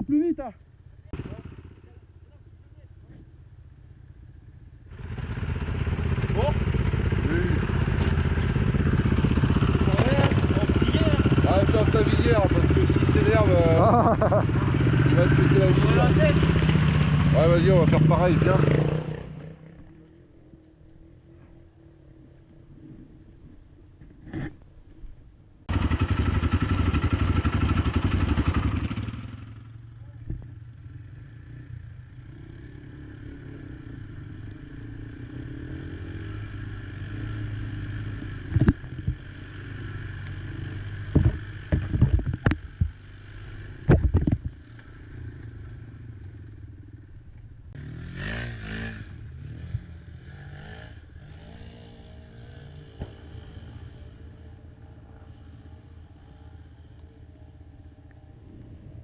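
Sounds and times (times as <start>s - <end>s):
quad engine revving: 4.9s - 20.1s, 25.7s - 45.9s, 47.7s - 57.1s.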